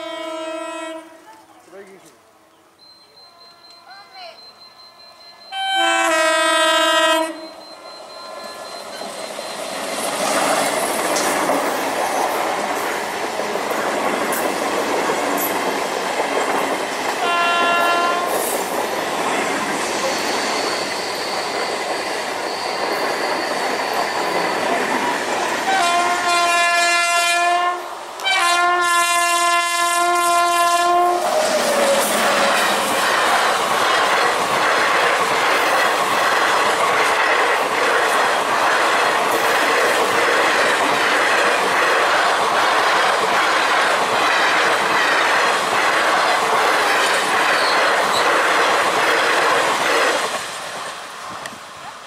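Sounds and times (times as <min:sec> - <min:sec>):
locomotive long horn blasts: 0:00.0 - 0:01.2, 0:05.5 - 0:07.6, 0:17.2 - 0:18.4, 0:25.7 - 0:31.3
train horn blast: 0:00.0 - 0:01.2, 0:05.5 - 0:07.6, 0:17.2 - 0:18.5, 0:25.7 - 0:31.3
train wheels on rails: 0:02.8 - 0:52.0.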